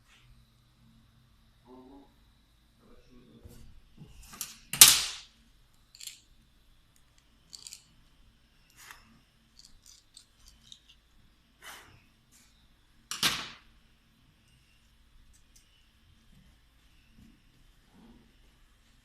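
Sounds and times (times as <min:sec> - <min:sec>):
metal tools clinking and knocking: 0:06.0 - 0:06.2, 0:07.5 - 0:07.9, 0:09.6 - 0:11.0.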